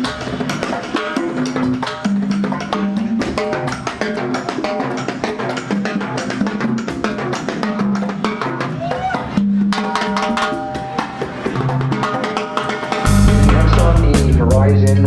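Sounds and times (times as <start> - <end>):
drums and percussion: 0.0 - 15.0
held pitched notes: 9.9 - 15.0.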